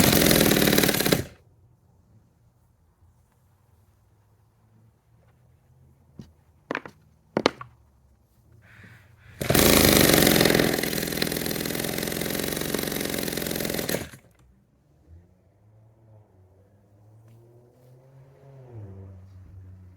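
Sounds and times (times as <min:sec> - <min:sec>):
chainsaw engine running: 0:00.0 - 0:01.4, 0:09.4 - 0:14.4.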